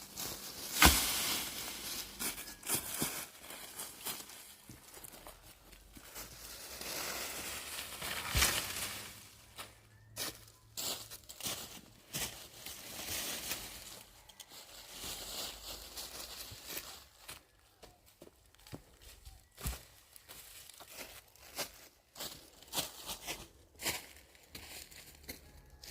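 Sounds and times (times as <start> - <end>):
materials rustling and scraping: 0.0 - 17.3.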